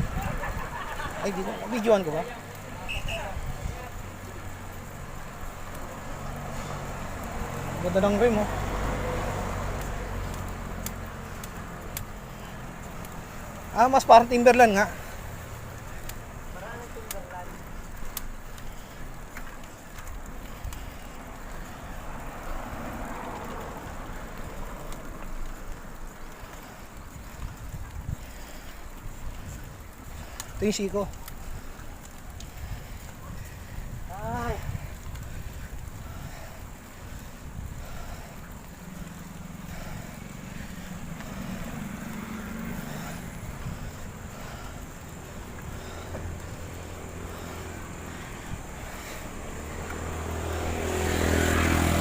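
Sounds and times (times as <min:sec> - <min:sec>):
wind rumbling on microphone: 0:00.0 - 0:01.2, 0:02.4 - 0:07.8, 0:17.6 - 0:52.0
vehicle engine droning low: 0:03.9 - 0:13.9, 0:32.5 - 0:52.0
light clicks: 0:09.7 - 0:13.7, 0:17.0 - 0:21.6.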